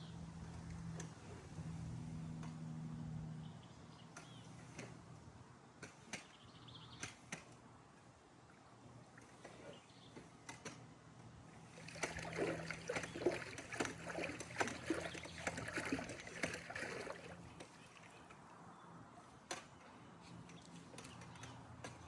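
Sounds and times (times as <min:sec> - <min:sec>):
water splashing in a pool: 0:11.6 - 0:18.6.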